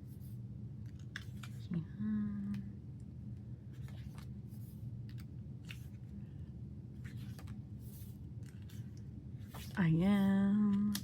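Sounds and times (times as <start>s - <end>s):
steady low hum: 0.0s - 11.0s
paper pages rustling: 0.1s - 1.6s, 3.7s - 9.8s.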